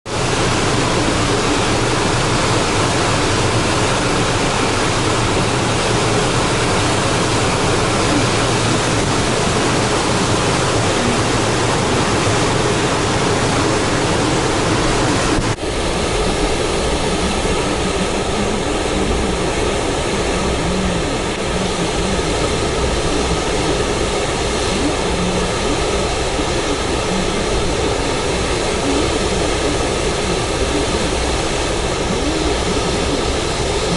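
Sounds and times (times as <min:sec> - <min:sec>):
strong wind and rain: 0:00.0 - 0:33.9.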